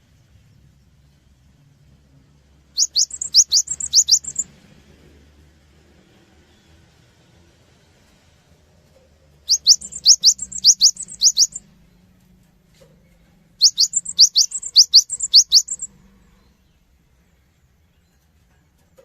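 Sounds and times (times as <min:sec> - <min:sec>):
bird singing two-note whistles: 0:02.8 - 0:04.4, 0:13.6 - 0:15.9.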